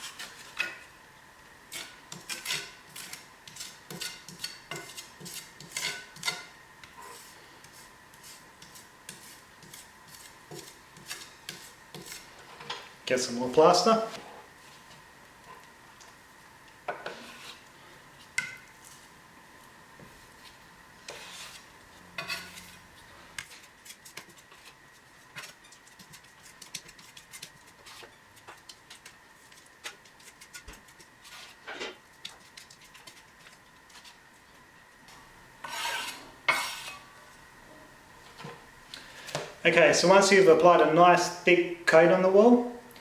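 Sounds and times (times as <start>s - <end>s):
spatula scraping filler on wall: 1.7s - 12.6s, 21.0s - 22.9s, 35.6s - 37.1s.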